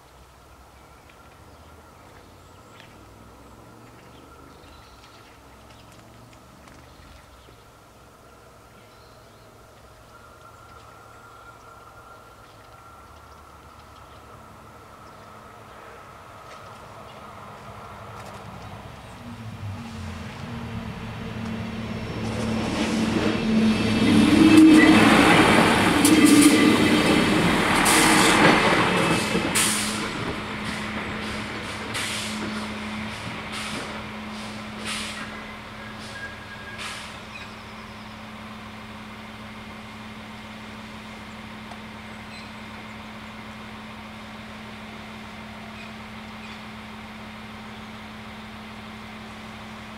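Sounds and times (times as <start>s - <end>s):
diesel railcar engine hum: 0.0s - 49.9s
wheels rumbling on rails: 0.0s - 49.9s
air hissing: 29.2s - 37.2s.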